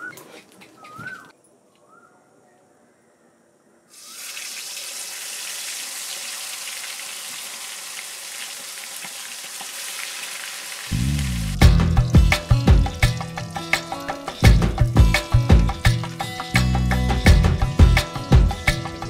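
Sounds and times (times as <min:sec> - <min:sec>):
chicken sizzling in hot oil: 0:03.9 - 0:15.2
music: 0:10.9 - 0:19.0.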